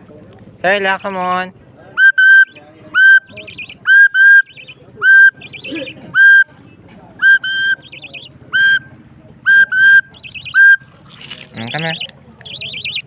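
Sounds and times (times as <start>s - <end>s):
soft warbled chirps: 2.0s - 6.5s, 7.2s - 8.9s, 9.5s - 13.0s
loud swooping whistled notes: 7.2s - 8.9s, 9.5s - 10.8s.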